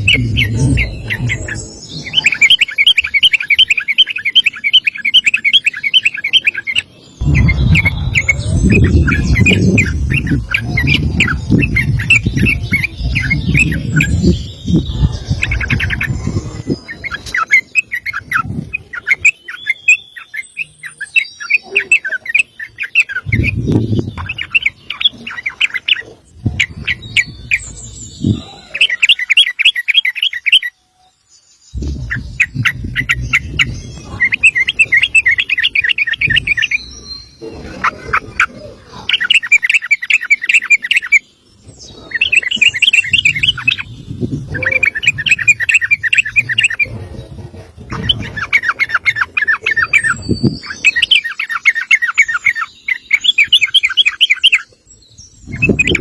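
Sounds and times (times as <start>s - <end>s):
bulbul singing: 0.0s - 56.0s
low rumble: 7.2s - 17.3s, 31.8s - 37.0s.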